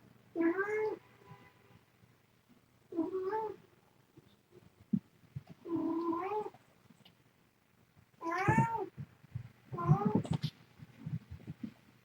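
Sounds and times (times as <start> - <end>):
cat meowing: 0.4 - 1.0, 8.2 - 8.9, 9.8 - 10.4.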